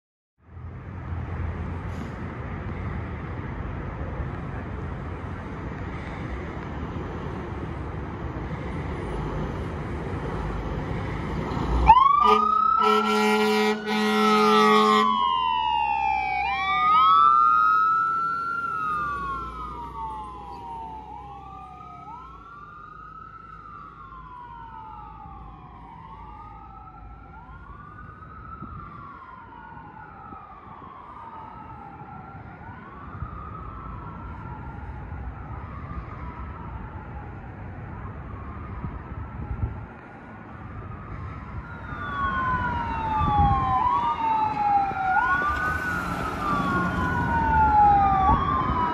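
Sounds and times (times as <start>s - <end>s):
fire engine rumbling: 0.4s - 48.9s
siren wailing: 11.6s - 39.9s, 40.6s - 48.9s
air horn blasts: 12.2s - 15.2s.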